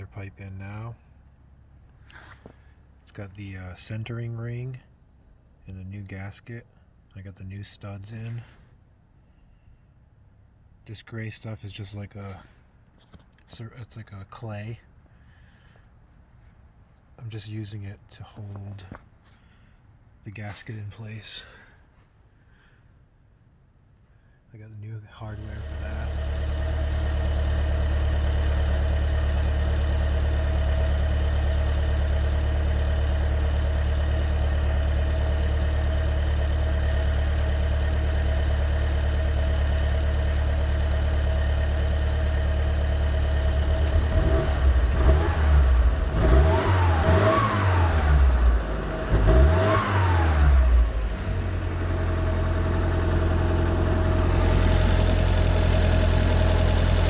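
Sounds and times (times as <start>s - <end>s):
engine idling and revving: 25.2s - 57.0s.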